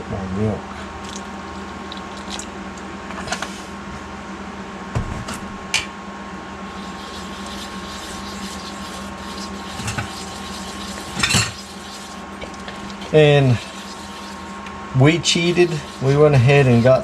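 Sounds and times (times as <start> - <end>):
kitchen appliance humming: 6.2 - 17.0.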